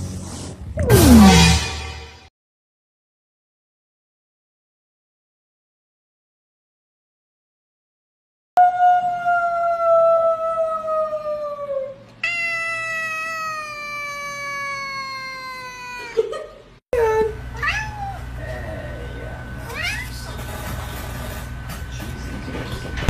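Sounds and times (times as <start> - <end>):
cat meowing: 12.2 - 16.2, 17.6 - 18.2, 19.7 - 20.1.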